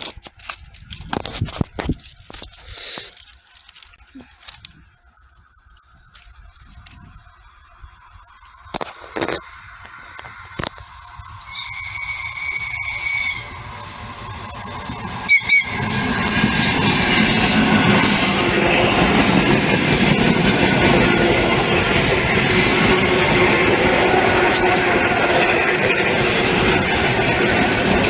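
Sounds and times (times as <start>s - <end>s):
train wheel and track noise: 0.0s - 28.0s
train horn blasts: 11.4s - 14.0s, 15.2s - 18.6s.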